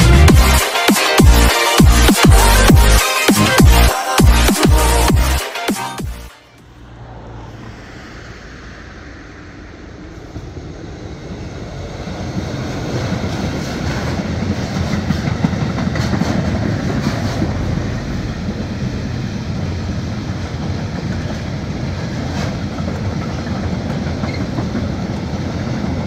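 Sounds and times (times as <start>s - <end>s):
train wheels rumbling on rail: 6.9s - 26.0s.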